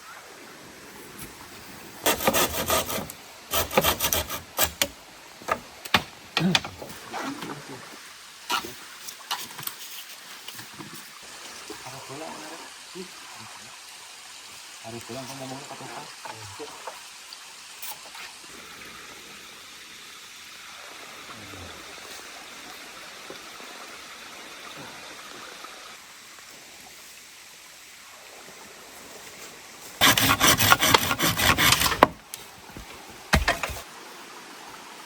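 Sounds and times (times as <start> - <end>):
saw cutting bamboo: 2.0 - 5.0, 30.0 - 32.2, 32.8 - 33.8.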